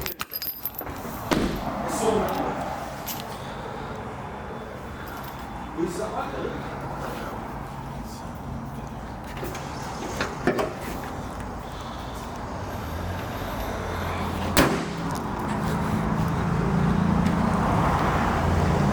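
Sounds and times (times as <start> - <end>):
sharp knock: 1.3 - 1.8.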